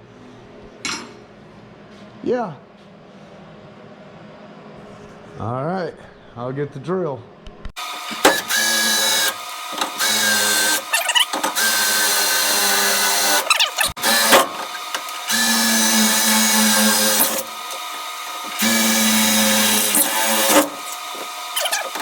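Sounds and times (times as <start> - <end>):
electric drill running: 7.8 - 22.0.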